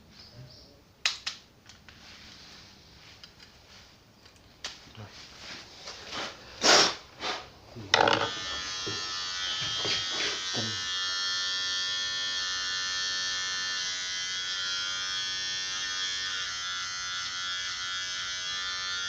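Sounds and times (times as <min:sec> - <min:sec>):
electric hair clippers buzzing: 0:07.9 - 0:19.0.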